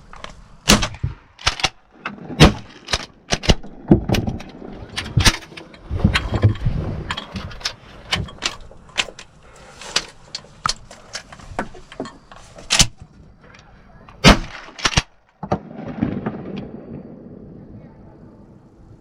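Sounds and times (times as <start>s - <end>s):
irregular sharp clicks and knocks: 2.4s - 9.3s.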